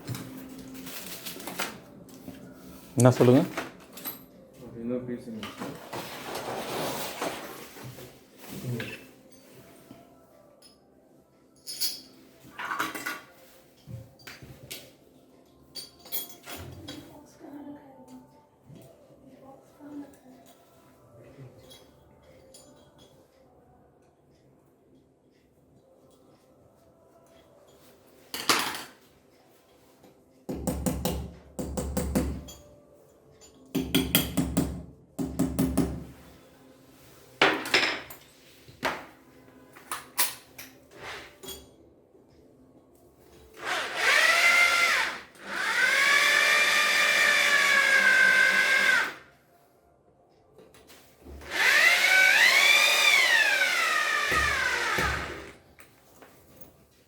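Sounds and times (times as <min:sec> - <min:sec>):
power drill whining: 0:43.6 - 0:49.2, 0:51.4 - 0:55.6.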